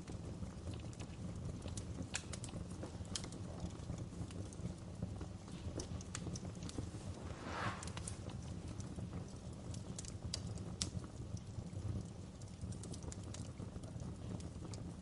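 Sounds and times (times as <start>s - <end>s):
wood fire crackling: 0.0s - 15.0s
fire hissing flare: 6.5s - 9.4s.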